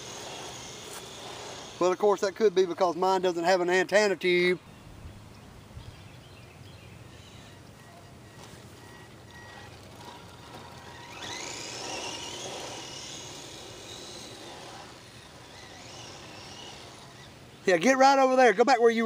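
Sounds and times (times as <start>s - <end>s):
rc truck electric motor whining: 0.0s - 3.3s, 7.2s - 18.4s.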